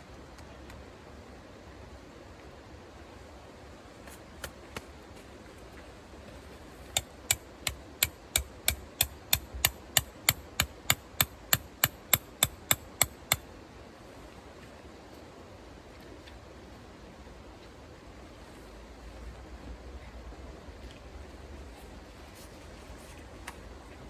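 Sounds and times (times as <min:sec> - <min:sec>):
hammer striking tent stake: 0:07.0 - 0:13.4.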